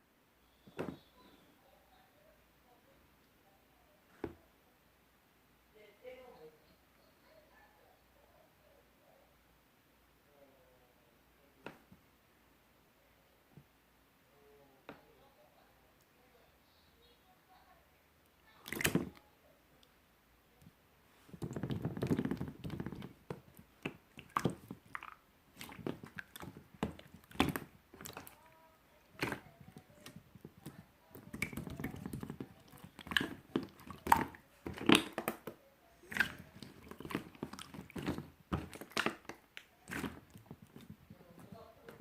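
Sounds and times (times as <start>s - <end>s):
slime being squished: 18.6s - 19.2s, 21.3s - 42.0s.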